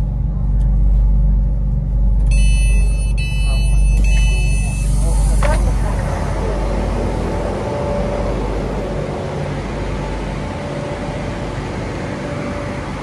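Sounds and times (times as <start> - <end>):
electric train hum and rush: 0.0 - 13.0
faint held tone: 2.3 - 6.4.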